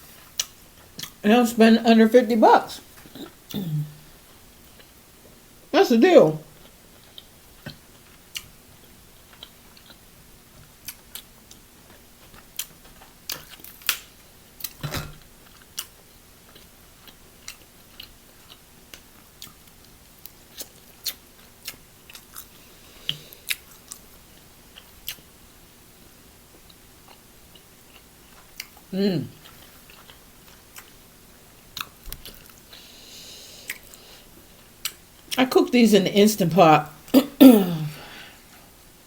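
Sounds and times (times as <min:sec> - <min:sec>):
person chewing wetly: 0:00.3 - 0:01.2, 0:06.6 - 0:10.1, 0:10.7 - 0:13.9, 0:15.4 - 0:24.0, 0:26.6 - 0:31.0, 0:31.8 - 0:32.6.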